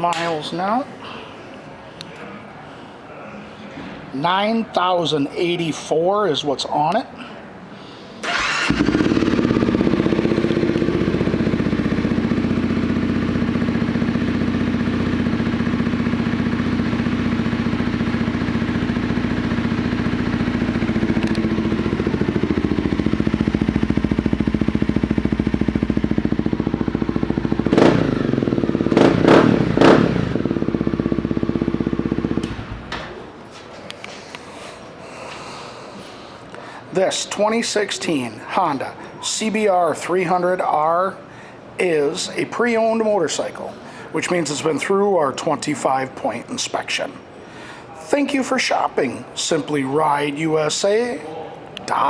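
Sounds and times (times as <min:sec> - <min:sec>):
motorcycle engine revving: 0:08.2 - 0:32.9
motorcycle engine idling: 0:08.3 - 0:33.1.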